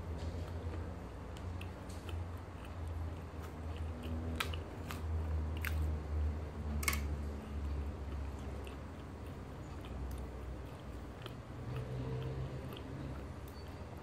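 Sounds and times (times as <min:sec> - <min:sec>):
low steady hum: 0:00.0 - 0:14.0
person chewing and biting bread: 0:00.4 - 0:06.0, 0:07.4 - 0:14.0.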